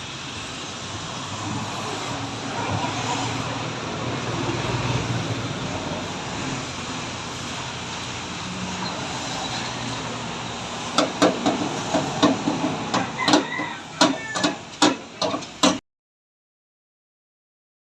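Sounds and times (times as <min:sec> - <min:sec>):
vehicle and road noise: 0:00.0 - 0:15.8
sharp irregular knocks: 0:11.0 - 0:15.8.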